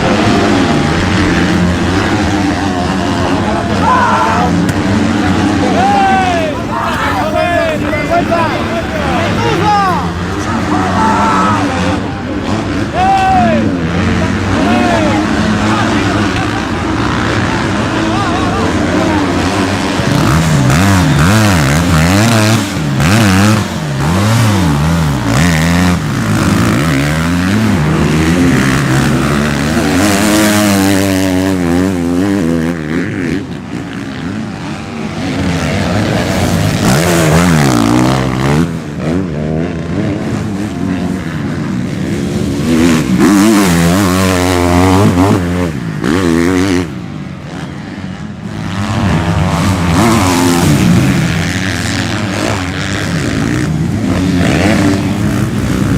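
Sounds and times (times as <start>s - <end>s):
motocross bike engines revving: 0.0s - 55.9s.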